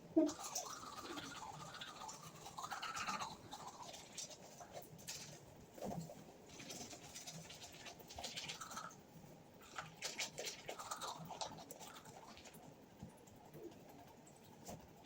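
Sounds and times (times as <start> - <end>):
toothbrush scrubbing teeth: 0.2 - 15.0.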